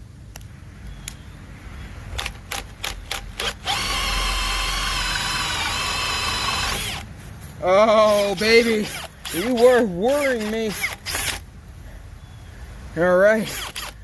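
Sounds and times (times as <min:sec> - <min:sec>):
hammer drill motor whining: 0:02.6 - 0:07.1, 0:08.0 - 0:11.4, 0:13.5 - 0:14.0.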